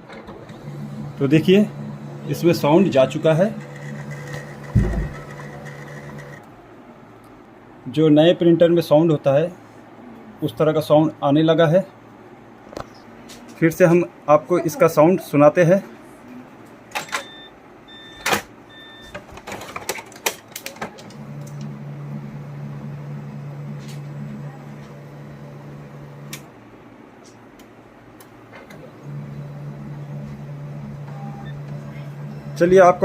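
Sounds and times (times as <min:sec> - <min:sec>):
printer motor hum: 0:00.1 - 0:06.5, 0:21.0 - 0:26.5, 0:28.5 - 0:33.0.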